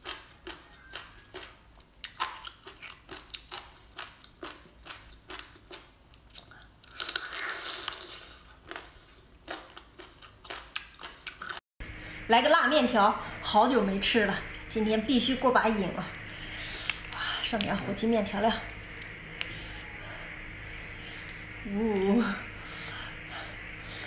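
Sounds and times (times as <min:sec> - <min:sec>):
person chewing with wet smacking: 0:00.0 - 0:11.6.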